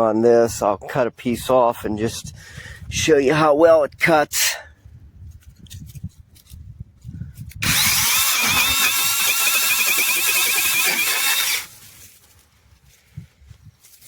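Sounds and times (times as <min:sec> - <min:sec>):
mini chainsaw cutting branch: 0:07.6 - 0:12.1.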